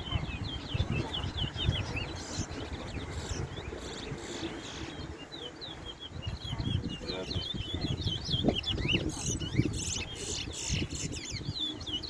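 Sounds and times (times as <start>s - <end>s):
songbird warbling: 0.0s - 12.0s.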